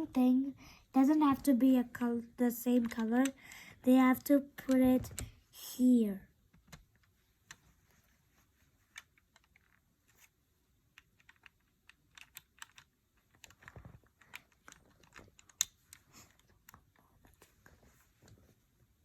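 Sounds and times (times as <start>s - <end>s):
plastic bricks clicking: 10.9s - 16.9s.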